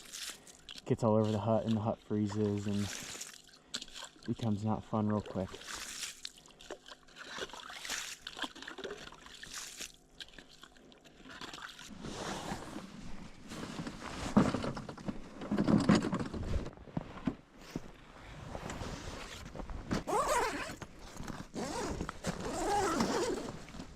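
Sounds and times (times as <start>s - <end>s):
ice scoop scraping slush: 1.0s - 3.3s, 11.9s - 14.6s.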